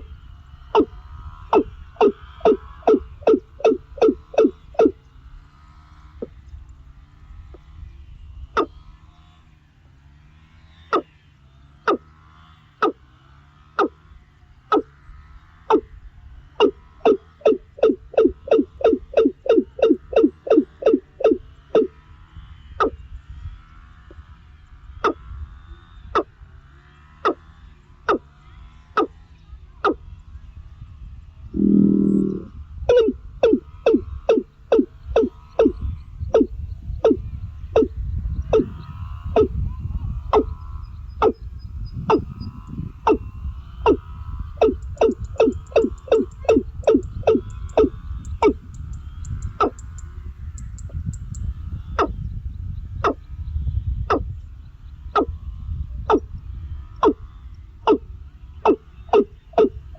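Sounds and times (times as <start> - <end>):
faint chorus of wild calls: 0.0 - 6.4, 10.7 - 13.1, 13.7 - 22.2, 31.6 - 59.9
bird short sharp call: 31.6 - 33.1.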